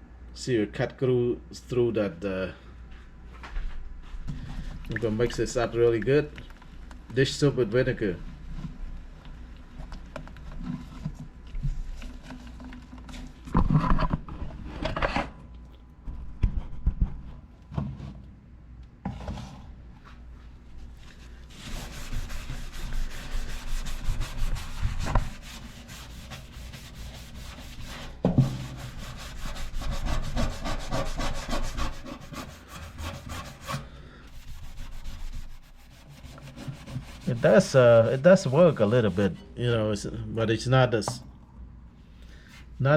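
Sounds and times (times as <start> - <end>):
fast scrubbing: 21.5 - 39.4.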